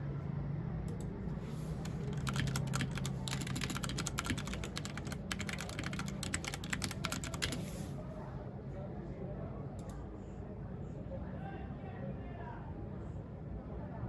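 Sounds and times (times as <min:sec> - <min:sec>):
mechanical keyboard typing: 0:01.7 - 0:07.9.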